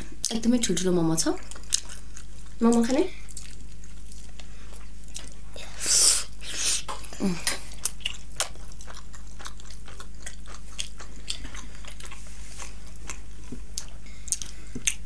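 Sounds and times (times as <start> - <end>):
chewing mouth clicks and smacks: 1.4 - 5.4, 7.5 - 12.2, 12.8 - 15.0.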